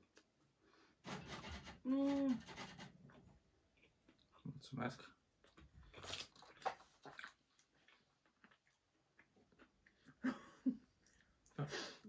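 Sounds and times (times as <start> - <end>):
people chewing chocolate: 5.4 - 10.3.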